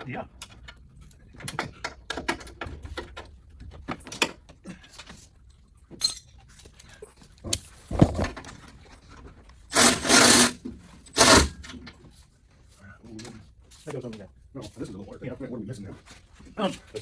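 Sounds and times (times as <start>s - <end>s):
loud scraping rasps: 9.7s - 10.6s, 11.2s - 11.6s
parts clicking and rubbing: 9.7s - 10.6s, 11.2s - 11.6s.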